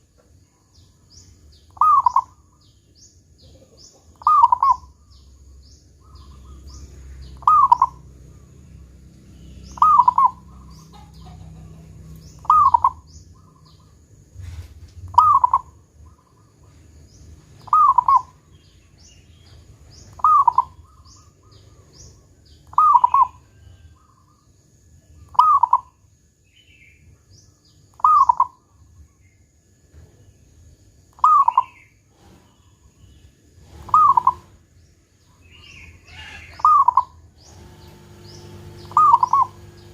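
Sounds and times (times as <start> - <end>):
small birds chirping: 0.0 - 39.9
dove cooing: 1.8 - 2.4, 3.4 - 4.9, 7.4 - 8.1, 9.7 - 16.5, 17.6 - 18.4, 20.1 - 23.4, 25.4 - 25.9, 33.6 - 34.6, 36.1 - 39.9.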